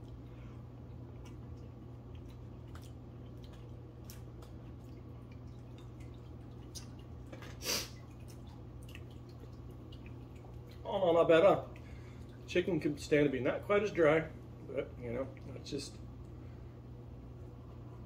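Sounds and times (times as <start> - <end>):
steady low hum: 0.0 - 18.0
wet chewing mouth clicks: 1.0 - 10.8.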